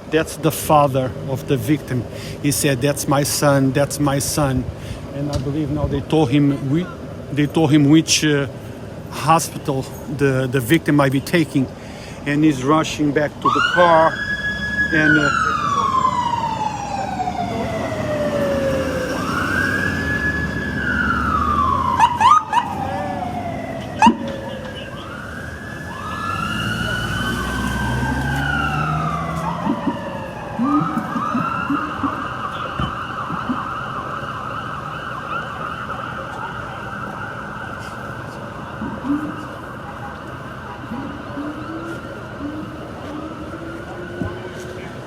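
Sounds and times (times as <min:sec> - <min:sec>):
emergency siren wailing and yelping: 0:13.4 - 0:45.0.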